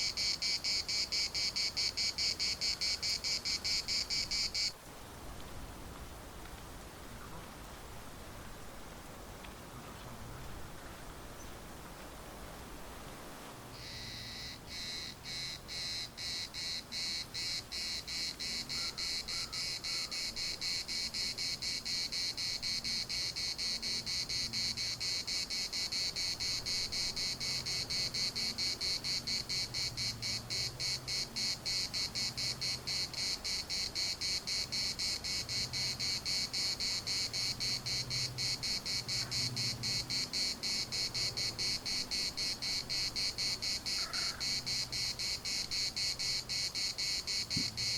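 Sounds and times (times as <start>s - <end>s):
cicada rasping buzz: 0.0s - 4.8s, 13.7s - 47.9s.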